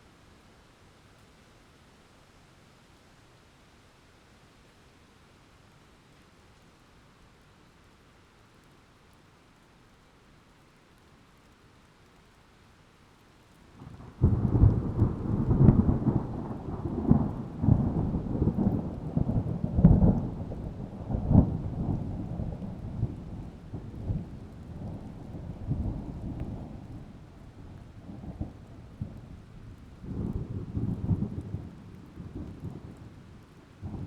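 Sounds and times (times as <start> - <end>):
rain falling: 0.1 - 34.0
thunder rumbling: 13.8 - 34.0.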